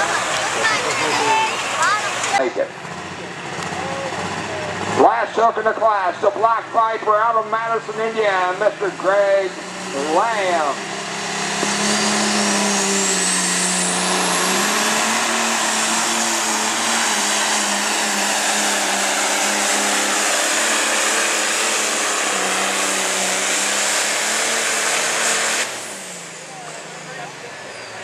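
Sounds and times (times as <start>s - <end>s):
diesel tractor engine roaring: 0.0s - 28.0s
turbo whine: 8.6s - 28.0s.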